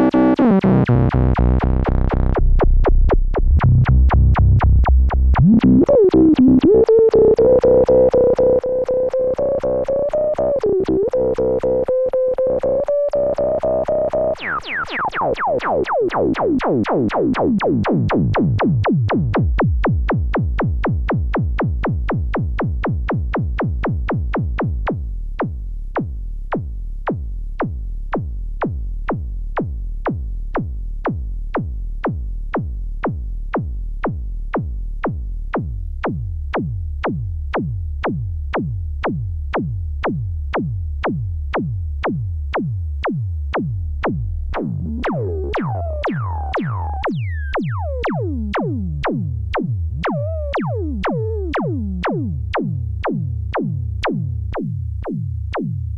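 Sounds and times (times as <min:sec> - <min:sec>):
low synth bass: 0:00.0 - 0:55.9
percussive synth hits: 0:14.2 - 0:55.8
filter-swept synth tones: 0:44.8 - 0:48.9.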